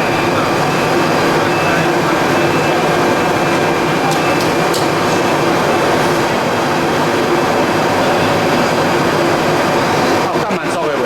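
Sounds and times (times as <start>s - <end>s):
industrial machinery drone: 0.0s - 11.0s.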